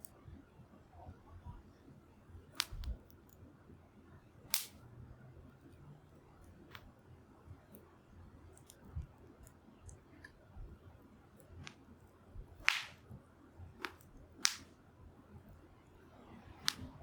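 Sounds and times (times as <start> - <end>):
fire popping: 12.6 - 13.0.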